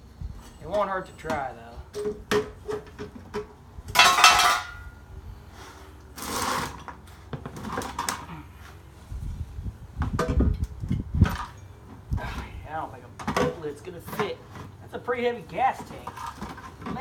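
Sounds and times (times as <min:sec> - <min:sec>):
metal clattering: 0:00.5 - 0:05.0
metal scraping: 0:03.9 - 0:08.2.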